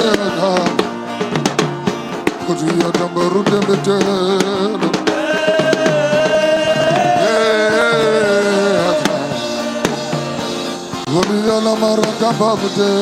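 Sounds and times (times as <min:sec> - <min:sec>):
singing voices holding a note: 0:02.3 - 0:13.0.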